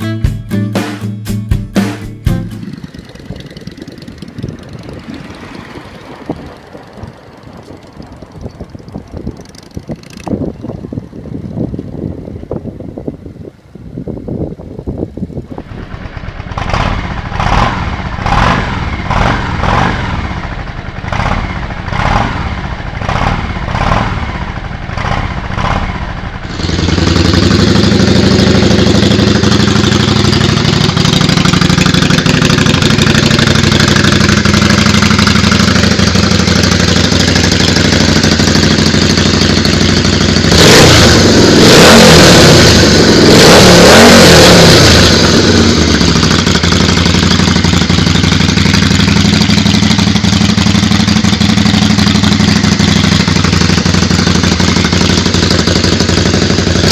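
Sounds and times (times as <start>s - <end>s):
motorcycle engine revving: 1.8s - 12.4s, 15.4s - 56.9s.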